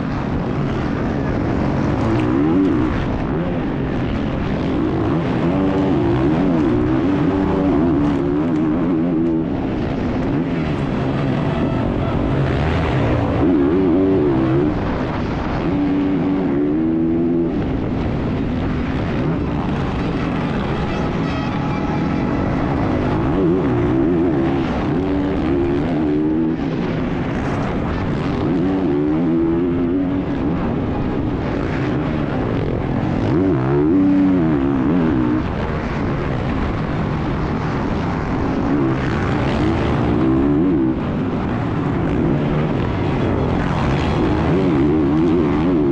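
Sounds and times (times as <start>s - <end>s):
wind and road noise: 0.0s - 45.9s
dirt bike engine revving: 0.4s - 36.0s, 37.1s - 45.9s.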